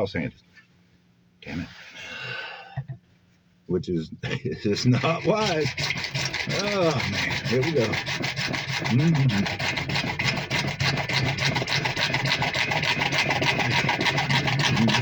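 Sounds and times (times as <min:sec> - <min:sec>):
hand saw cutting plastic pipe: 0:04.8 - 0:15.0.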